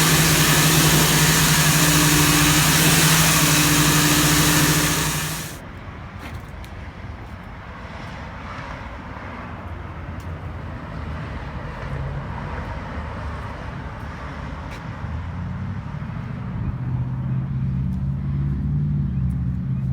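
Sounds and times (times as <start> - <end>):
gas engine hum: 0.0 - 5.6
pressure washer spray hiss: 0.0 - 5.6.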